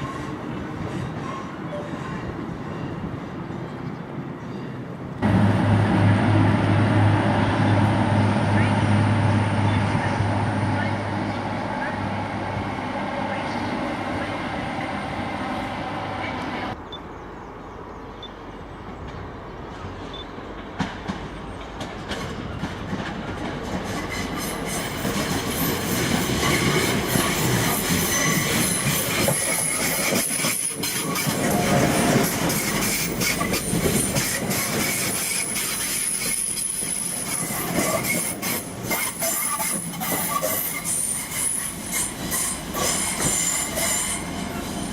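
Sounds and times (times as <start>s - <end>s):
train running on track: 0.0s - 44.9s
wheels clicking over rail joints: 20.5s - 43.9s
high wheel squeal: 24.0s - 44.9s.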